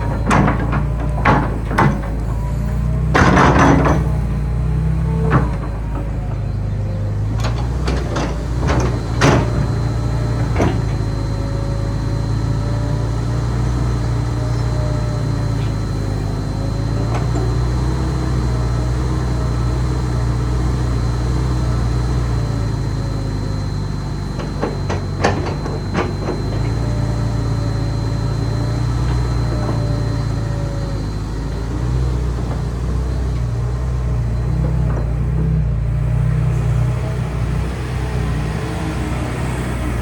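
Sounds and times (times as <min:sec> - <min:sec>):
sharp metal knocks and clunks: 0:00.0 - 0:02.4, 0:03.0 - 0:04.4
excavator engine and hydraulics: 0:00.0 - 0:40.0.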